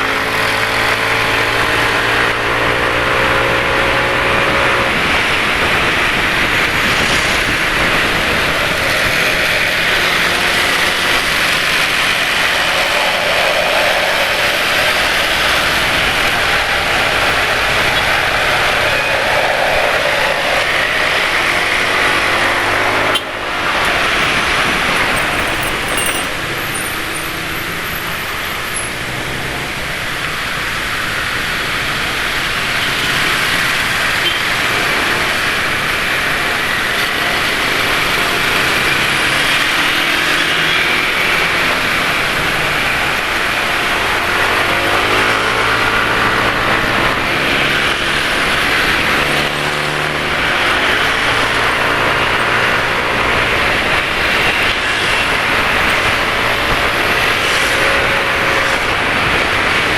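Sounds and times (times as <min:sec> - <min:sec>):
motorcycle engines in traffic: 0:00.0 - 0:59.9
road and wind noise: 0:00.0 - 0:59.9.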